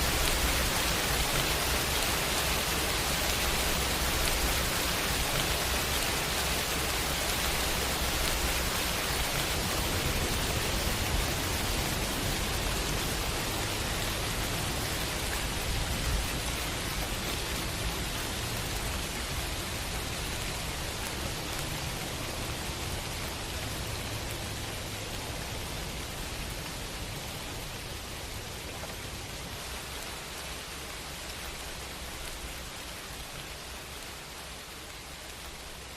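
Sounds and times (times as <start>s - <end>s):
heavy rain falling: 0.0s - 35.9s.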